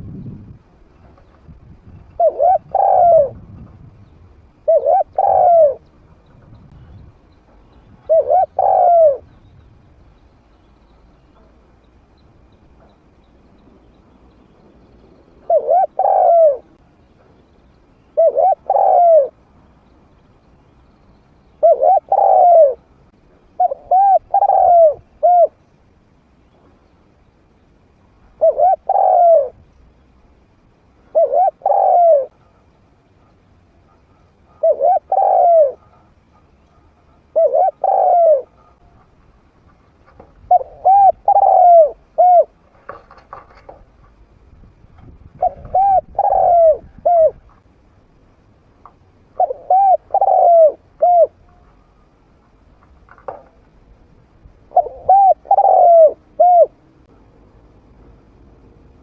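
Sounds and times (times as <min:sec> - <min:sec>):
dove cooing: 0:02.0 - 0:03.5, 0:04.6 - 0:07.0, 0:07.8 - 0:09.4, 0:15.4 - 0:16.8, 0:18.1 - 0:19.4, 0:21.6 - 0:22.9, 0:23.6 - 0:25.6, 0:28.3 - 0:29.6, 0:31.0 - 0:39.1, 0:39.7 - 0:43.8, 0:45.3 - 0:47.6, 0:49.3 - 0:52.1, 0:54.7 - 0:56.8.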